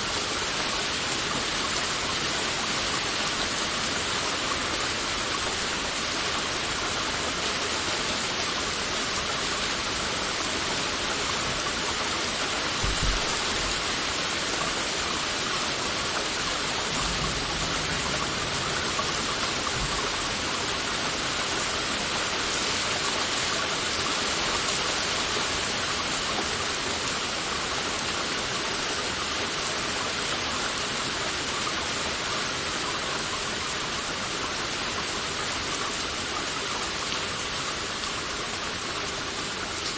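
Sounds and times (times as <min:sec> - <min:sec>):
heavy rain falling: 0:00.0 - 0:39.9
low thump: 0:12.8 - 0:13.4.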